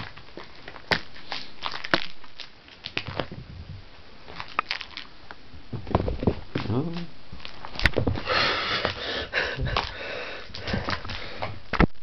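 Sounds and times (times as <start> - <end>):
kitten paws tapping and scratching: 5.7 - 11.9.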